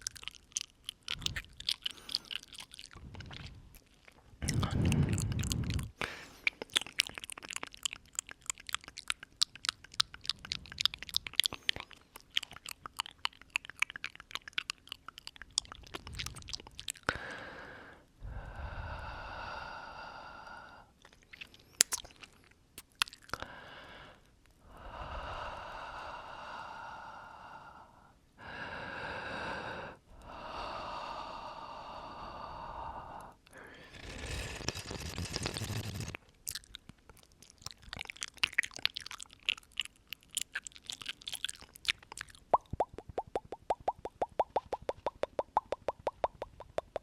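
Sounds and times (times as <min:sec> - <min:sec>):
wet mouth clicks and lip smacks: 0:00.0 - 0:17.2, 0:21.0 - 0:23.4, 0:33.5 - 0:47.0
rapid tongue clicks: 0:00.0 - 0:17.3, 0:21.1 - 0:23.5, 0:33.5 - 0:47.0
slow exhales into microphone: 0:30.8 - 0:36.1.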